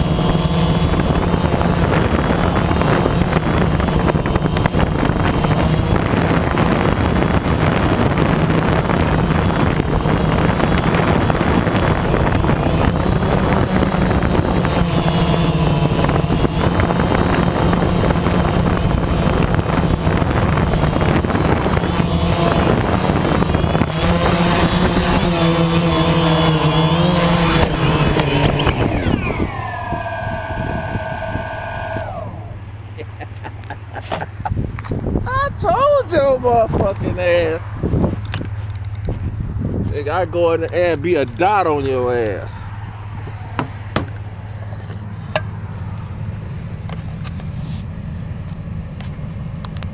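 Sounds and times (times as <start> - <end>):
wind noise: 0.0 - 32.7, 34.2 - 40.7
falling whining tones: 0.0 - 33.6
motor vehicle running: 0.0 - 49.9
road noise: 0.0 - 49.9
steady low hum: 0.0 - 49.9.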